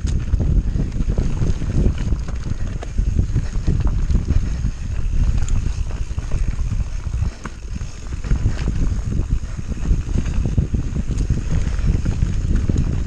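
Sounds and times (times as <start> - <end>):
bike rattling and clicking: 0.0 - 13.0
tyre rumble: 0.0 - 13.0
wind buffeting microphone: 0.0 - 13.0.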